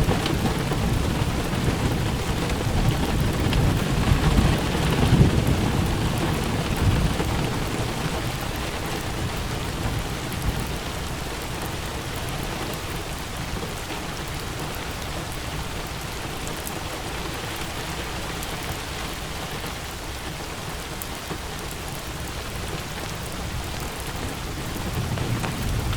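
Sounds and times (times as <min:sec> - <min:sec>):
low rumble of thunder: 0:00.0 - 0:13.0, 0:23.2 - 0:25.9
steady rain falling: 0:00.0 - 0:25.9.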